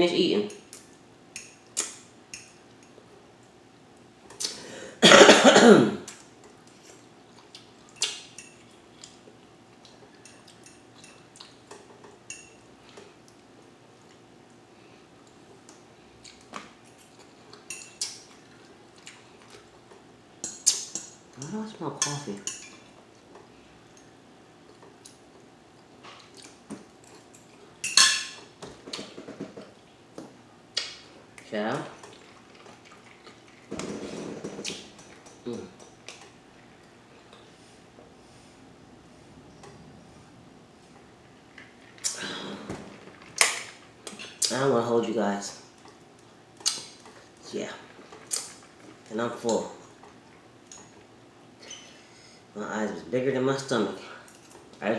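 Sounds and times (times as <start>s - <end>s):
woman coughing: 5.0s - 6.0s
cutlery clinking on plate: 27.8s - 28.5s.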